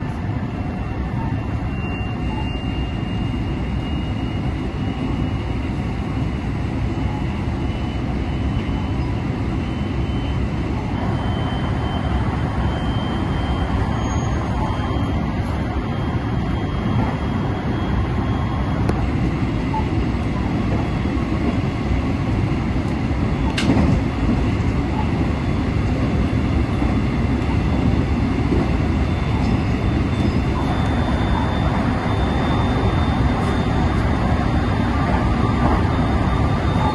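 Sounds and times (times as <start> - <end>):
train rumbling at speed: 0.0 - 36.9.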